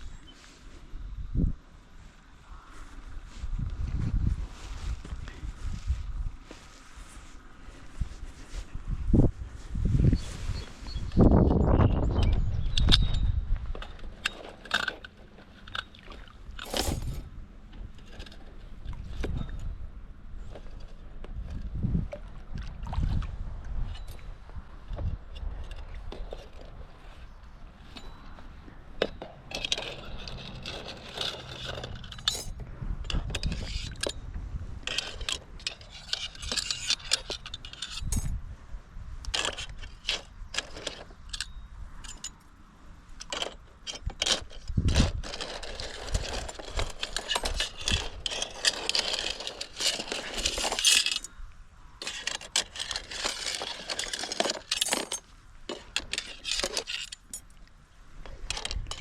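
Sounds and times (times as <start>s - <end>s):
metal parts clinking and rattling: 11.2s - 17.3s, 29.0s - 34.2s, 34.8s - 38.4s, 39.3s - 42.5s, 43.2s - 51.4s, 52.0s - 57.6s, 58.2s - 59.0s.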